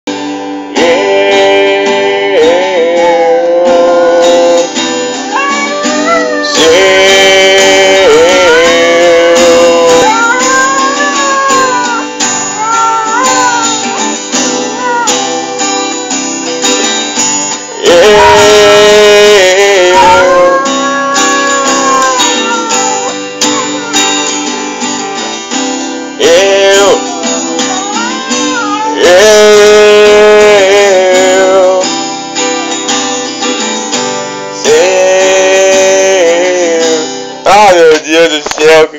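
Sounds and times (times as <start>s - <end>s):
person singing: 0.7s - 24.8s, 26.0s - 31.9s, 34.4s - 38.0s
band playing guitar-led song: 4.4s - 30.5s.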